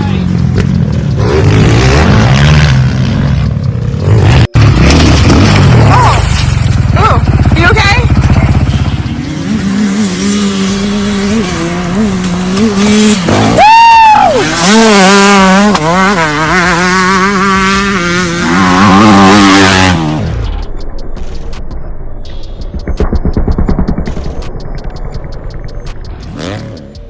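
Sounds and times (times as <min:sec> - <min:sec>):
off-road vehicle engine revving: 0:00.0 - 0:20.5.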